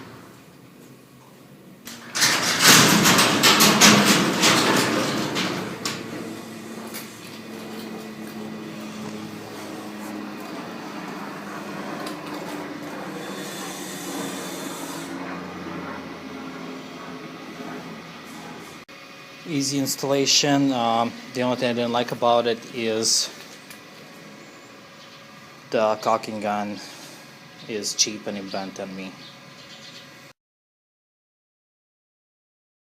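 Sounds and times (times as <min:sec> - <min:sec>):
garage door motor hum: 0:00.0 - 0:30.3
garage door rattling: 0:01.9 - 0:15.8.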